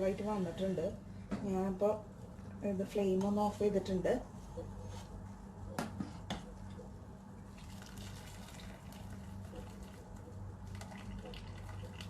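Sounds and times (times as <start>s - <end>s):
steady low hum: 0.0s - 12.0s
pot of water bubbling: 7.4s - 12.0s.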